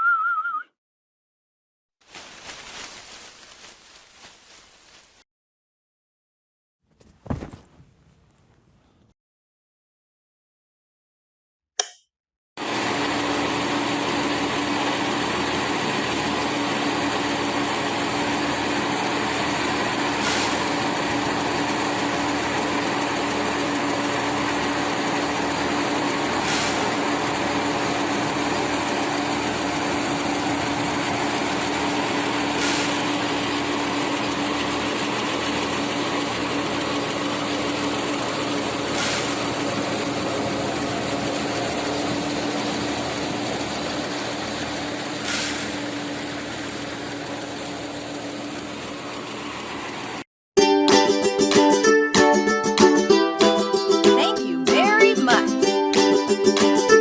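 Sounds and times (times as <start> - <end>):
small engine running: 12.6 - 50.2.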